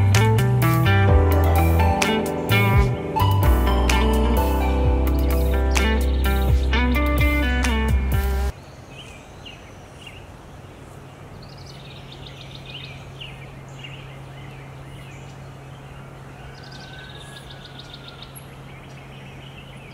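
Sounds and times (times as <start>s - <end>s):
guitar music: 0.0s - 8.5s
low hum: 0.0s - 8.5s
songbirds chirping and trilling: 0.0s - 19.9s.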